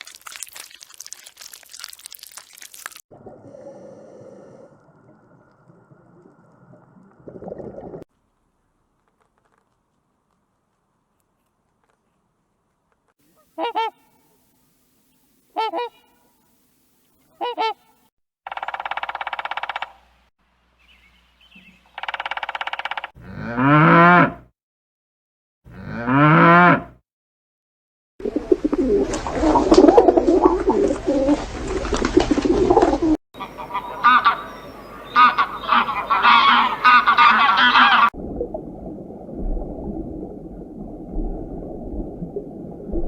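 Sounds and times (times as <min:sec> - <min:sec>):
cattle mooing: 0:23.2 - 0:24.4, 0:25.7 - 0:26.9
flock of birds honking: 0:33.4 - 0:38.1.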